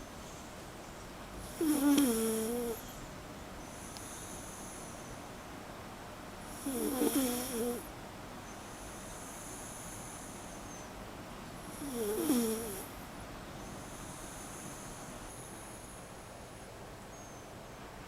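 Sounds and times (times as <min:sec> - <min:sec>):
dog snoring: 0:01.4 - 0:03.0, 0:06.4 - 0:07.9, 0:11.6 - 0:13.0.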